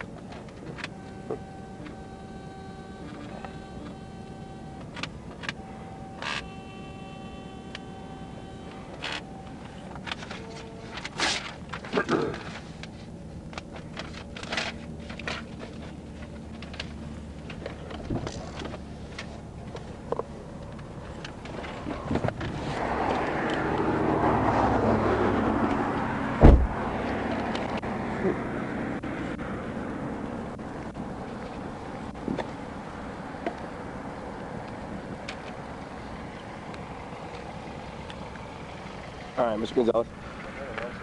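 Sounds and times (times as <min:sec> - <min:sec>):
car engine idling hum: 0:00.0 - 0:41.0
rush of outside noise: 0:00.0 - 0:41.0
car door shutting: 0:00.4 - 0:12.6, 0:21.3 - 0:28.4.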